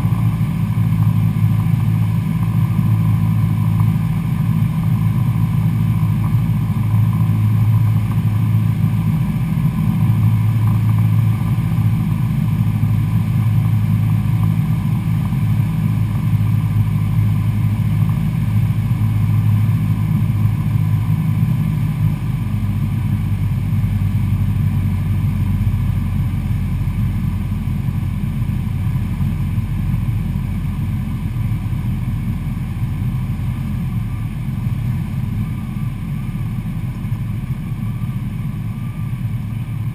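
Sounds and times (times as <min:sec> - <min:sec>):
airplane engine and propeller: 0:00.0 - 0:39.9.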